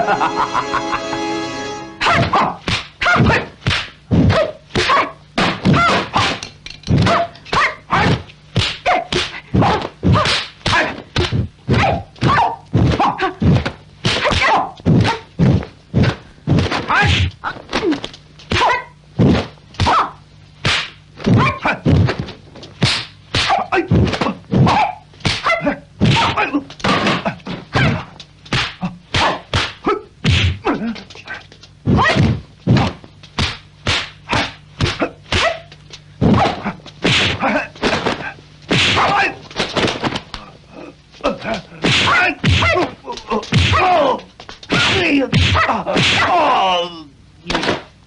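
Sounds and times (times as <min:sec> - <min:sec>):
punch and kick impacts: 0:02.2 - 0:20.0, 0:20.6 - 0:30.9, 0:31.9 - 0:35.6, 0:36.2 - 0:40.2, 0:41.8 - 0:44.1, 0:44.7 - 0:46.4.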